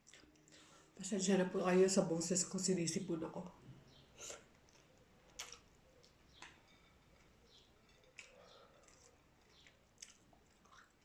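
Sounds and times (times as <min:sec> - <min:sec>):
person chewing with mouth smacks: 0:04.2 - 0:11.0.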